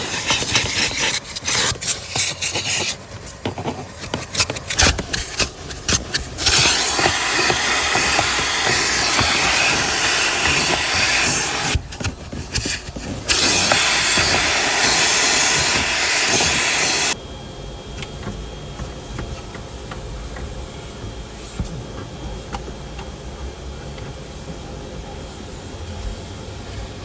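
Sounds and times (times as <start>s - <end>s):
vacuum hose sucking air: 0.0s - 17.2s
quiet machine hum: 0.0s - 27.0s.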